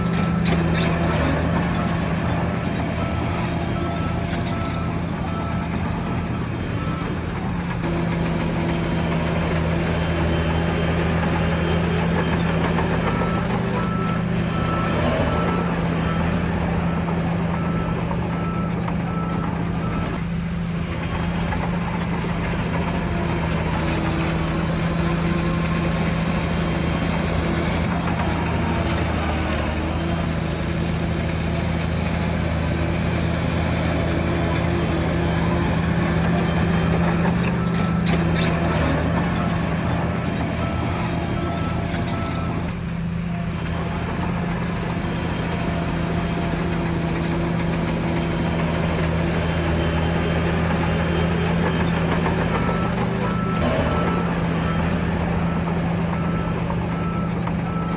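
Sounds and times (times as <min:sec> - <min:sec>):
diesel machinery running: 0:00.0 - 0:57.9
reversing alarm beeping: 0:51.1 - 0:57.9.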